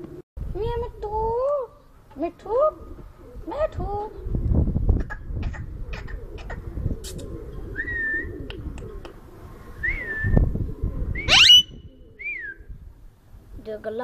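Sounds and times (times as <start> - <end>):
parrot whistling: 11.2 - 12.5
parrot screeching: 11.3 - 11.7.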